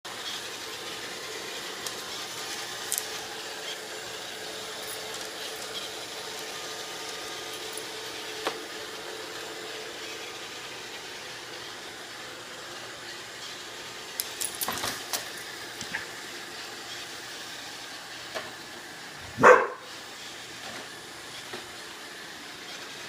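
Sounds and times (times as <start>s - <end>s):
robot vacuum humming: 0.1s - 23.0s
dog barking: 19.4s - 19.9s.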